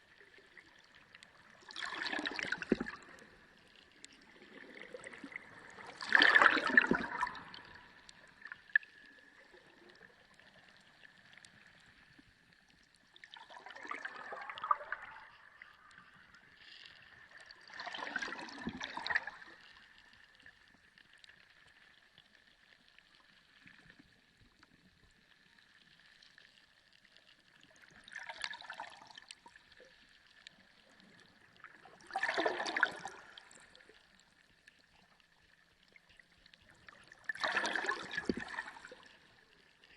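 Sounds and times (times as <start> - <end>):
gurgling water surges underwater: 0.0 - 39.9.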